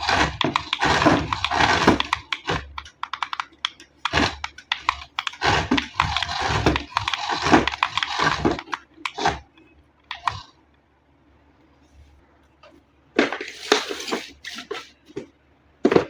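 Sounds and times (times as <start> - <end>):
sharp clicks and crackles: 0.0 - 9.4.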